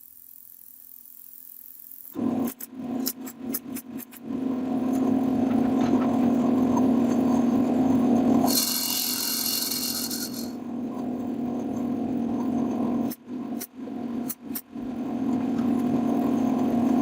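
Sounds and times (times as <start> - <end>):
high-pitched hiss: 0.0 - 2.2, 8.5 - 10.6
power tool working wood: 8.4 - 10.6.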